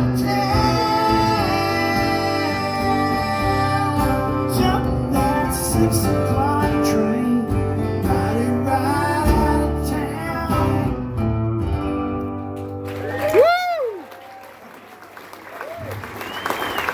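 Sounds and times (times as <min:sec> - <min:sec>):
person singing: 0:00.0 - 0:11.0
acoustic guitar strumming: 0:00.0 - 0:12.8.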